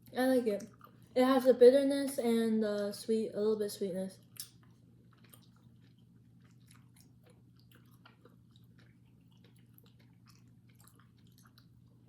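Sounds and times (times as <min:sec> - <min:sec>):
low steady hum: 0:00.0 - 0:12.0
wet mouth chewing smacks: 0:00.6 - 0:01.1, 0:04.2 - 0:12.0.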